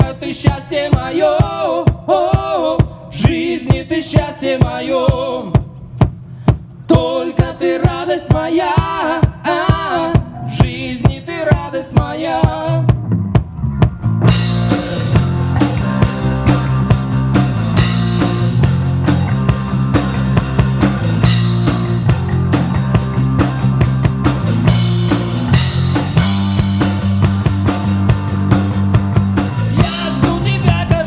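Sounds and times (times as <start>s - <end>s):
heavy bass line: 12.9s - 31.0s
rock band playing: 14.0s - 31.0s.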